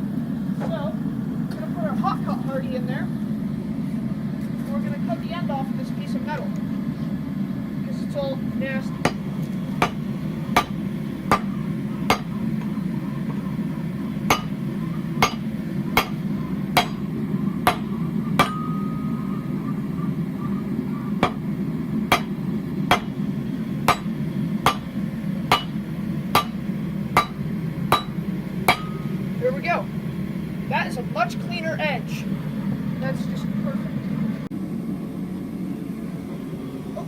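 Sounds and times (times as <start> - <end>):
gas forge rumble: 0.0 - 37.0
hammer striking hot steel on anvil: 9.0 - 19.6, 21.2 - 29.4.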